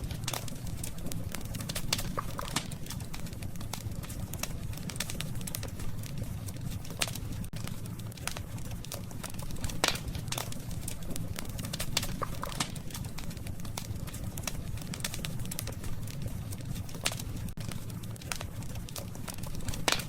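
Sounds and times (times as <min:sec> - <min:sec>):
burning wood crackling and popping: 0:00.0 - 0:20.0
campfire low rumble: 0:00.0 - 0:20.0.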